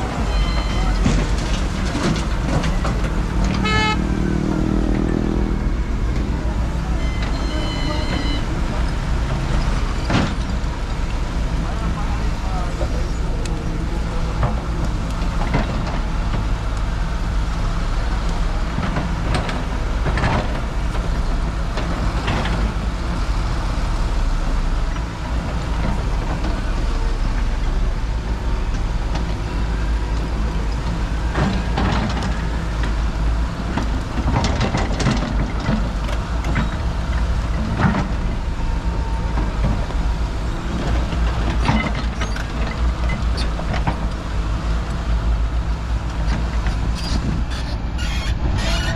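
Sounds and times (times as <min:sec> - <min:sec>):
traffic rumble of engines and tyres: 0:00.0 - 0:48.9
short knocks and clatters: 0:33.7 - 0:38.3.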